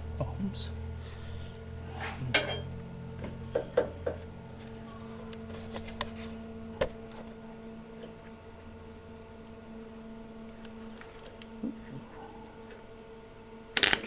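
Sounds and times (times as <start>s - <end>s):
steady low hum: 0.0s - 10.9s
small metal parts clicking: 13.8s - 14.0s.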